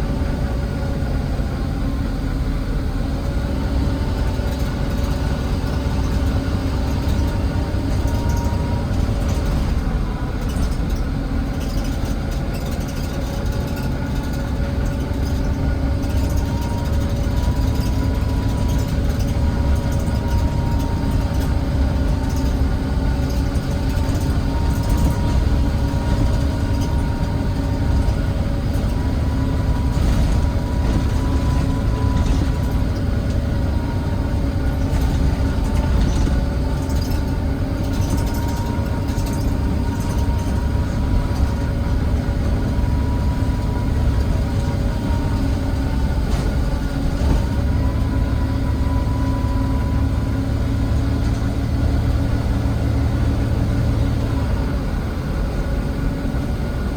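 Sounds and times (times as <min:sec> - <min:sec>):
bus diesel engine drone: 0:00.0 - 0:56.9
thin engine whine: 0:15.1 - 0:56.9.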